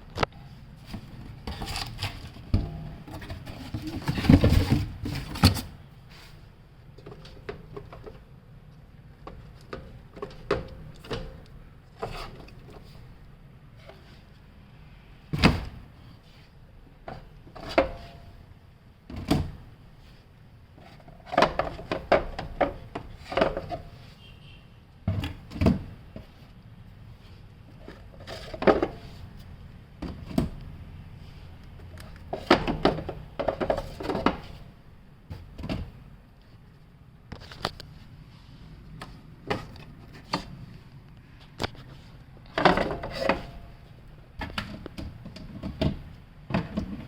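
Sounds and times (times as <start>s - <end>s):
hard parts and tools clattering: 0.8s - 5.8s, 41.6s - 43.8s.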